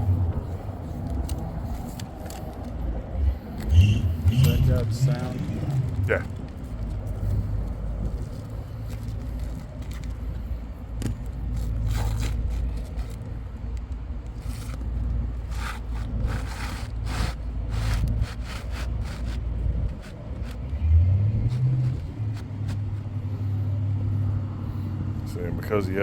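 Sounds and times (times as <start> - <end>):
steady low rumble: 0.0 - 26.0
roofing shingles scraping: 14.4 - 20.7.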